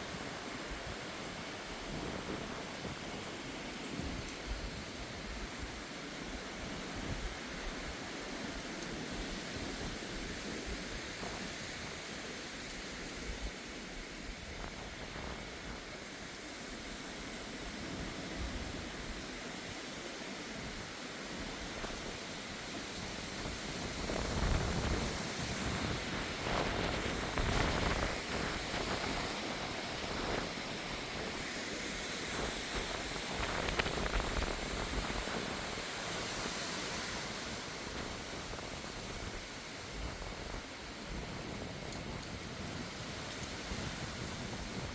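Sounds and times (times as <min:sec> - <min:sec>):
gusty wind rushing: 0:23.3 - 0:44.9.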